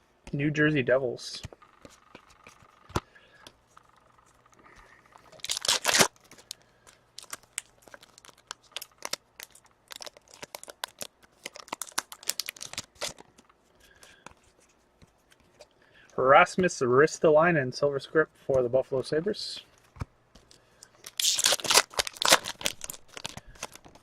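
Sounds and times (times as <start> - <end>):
wrapper ripping: 5.3 - 6.6, 7.2 - 13.2, 21.0 - 24.0.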